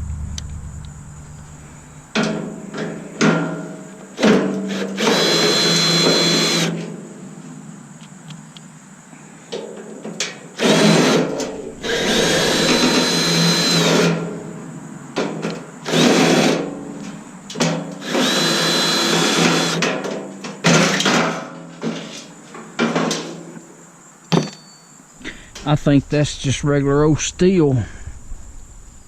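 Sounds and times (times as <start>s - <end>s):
power drill motor whining: 4.7s - 6.8s, 10.6s - 14.2s, 15.9s - 16.6s, 18.0s - 19.8s.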